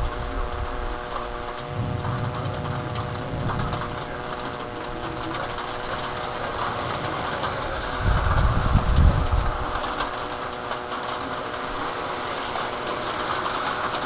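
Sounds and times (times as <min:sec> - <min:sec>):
low thunder rumble: 0:00.0 - 0:10.7
heavy rain hiss and patter: 0:00.0 - 0:14.0
steady hum with pitched tones: 0:00.0 - 0:14.0.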